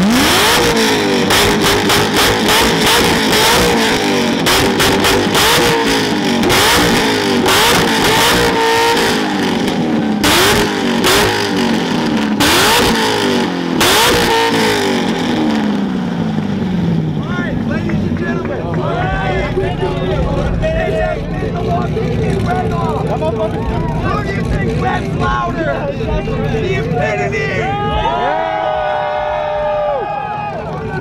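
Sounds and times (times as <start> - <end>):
car engine revving: 0.0 - 31.0
exhaust pops and crackles: 0.5 - 13.1, 17.1 - 27.0.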